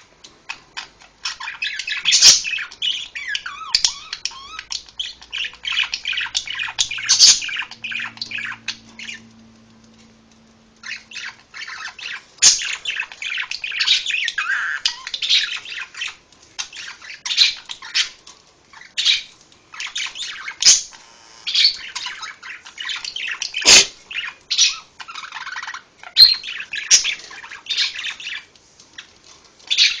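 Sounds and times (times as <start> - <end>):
parrot chattering and squawking: 0.5 - 9.5, 10.8 - 29.1.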